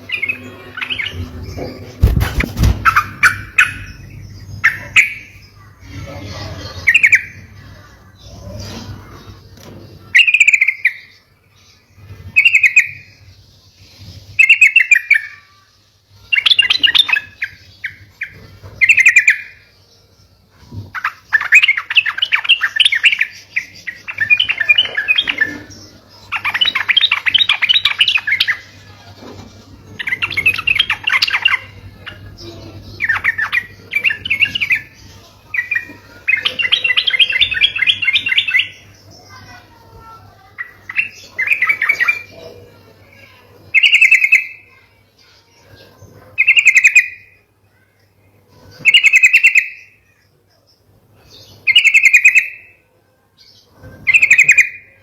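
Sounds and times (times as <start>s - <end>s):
rapid bird chattering: 0.0s - 5.5s, 20.9s - 39.8s, 40.4s - 44.8s.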